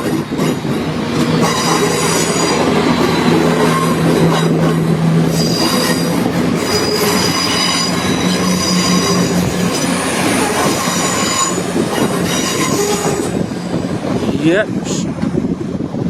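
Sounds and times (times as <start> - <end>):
diesel train engines running: 0.0 - 16.0
high-pitched wheel squeal: 5.3 - 9.8, 10.4 - 13.3.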